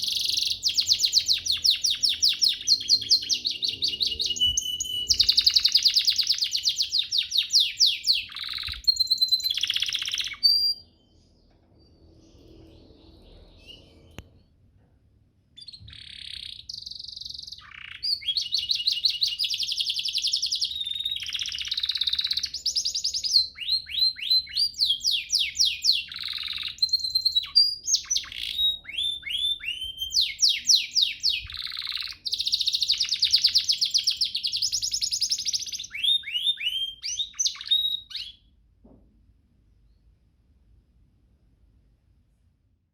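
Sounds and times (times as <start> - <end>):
canary singing: 0.0 - 14.5, 15.5 - 38.5.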